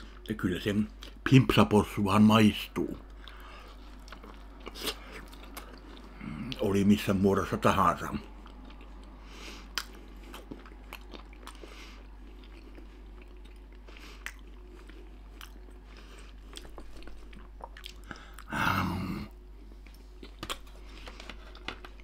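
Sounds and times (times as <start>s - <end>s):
wet chewing and smacking: 3.0s - 6.6s, 8.2s - 18.5s.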